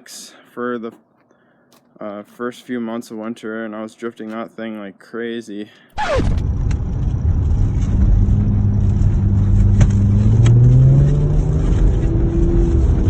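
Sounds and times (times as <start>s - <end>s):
car engine accelerating: 6.0s - 13.0s.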